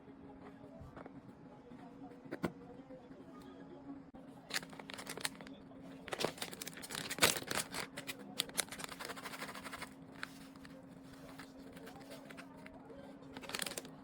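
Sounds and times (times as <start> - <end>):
handling clicks and rustling: 4.5 - 14.0.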